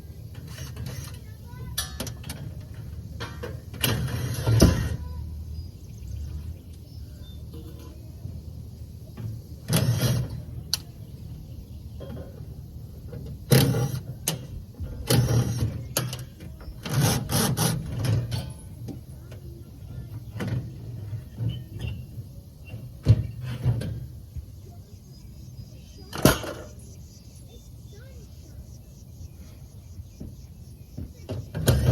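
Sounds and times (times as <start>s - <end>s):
hand tools clanking and scraping: 0.2s - 5.2s, 7.4s - 8.3s, 9.1s - 24.2s, 26.1s - 26.9s, 31.0s - 31.9s.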